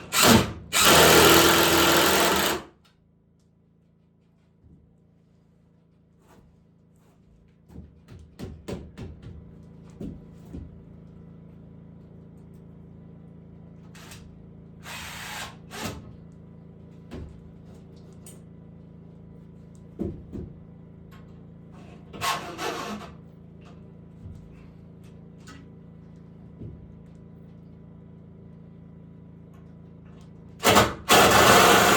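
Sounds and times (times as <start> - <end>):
knocks and taps on wood: 7.7 - 10.8.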